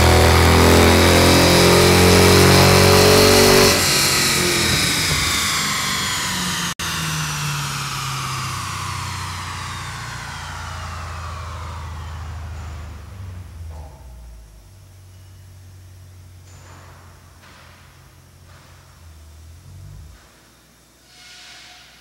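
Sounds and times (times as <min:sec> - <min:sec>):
engine at full throttle: 0:00.0 - 0:14.8
engine winding down whine: 0:00.0 - 0:16.4, 0:18.1 - 0:20.3.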